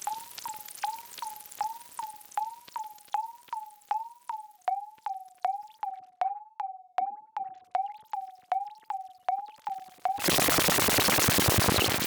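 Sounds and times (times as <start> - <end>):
electronic robotic blips: 0.0 - 6.0, 7.3 - 12.0.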